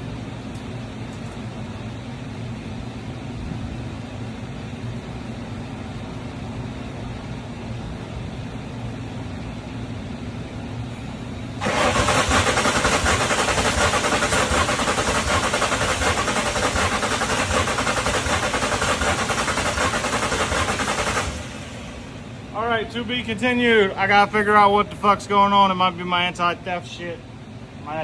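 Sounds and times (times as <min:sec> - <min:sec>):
starter motor cranking engine: 0:11.6 - 0:22.2
low steady hum: 0:21.2 - 0:28.0.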